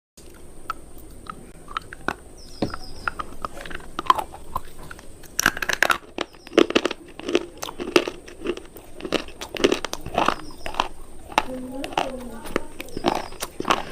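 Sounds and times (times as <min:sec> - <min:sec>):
crunching of brittle cubes: 0:00.2 - 0:13.9.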